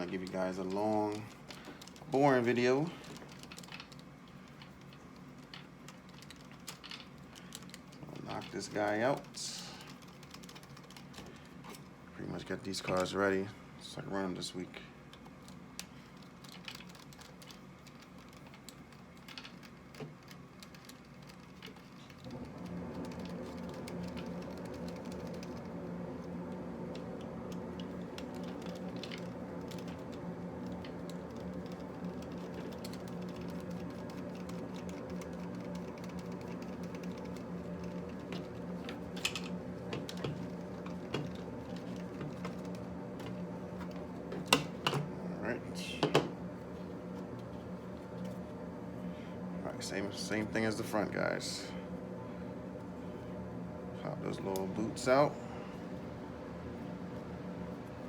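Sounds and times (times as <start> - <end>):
steady electrical hum: 0.0 - 58.0.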